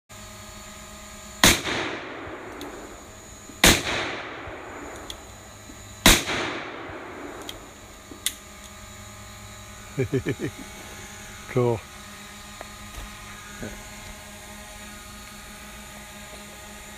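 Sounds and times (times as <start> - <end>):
steady hum: 0.1 - 16.9
gunshots with rolling echo: 1.4 - 7.9.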